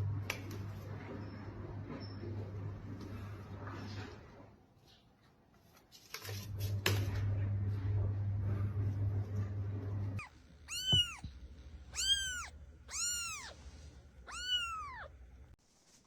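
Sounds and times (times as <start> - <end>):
cat meowing: 10.2 - 11.3, 12.0 - 13.6, 14.3 - 15.1.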